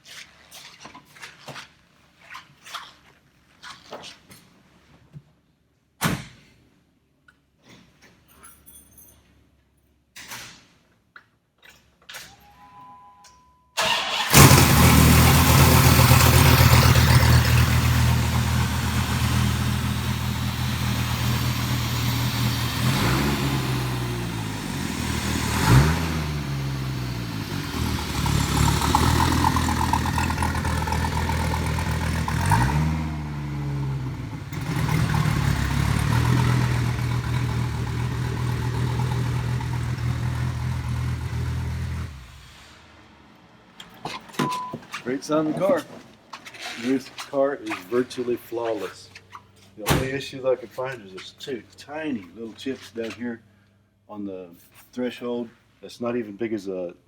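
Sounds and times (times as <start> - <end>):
two-tone chime: 12.5 - 13.7
engine cranking: 13.8 - 42.7
car engine idling and revving: 13.8 - 44.7.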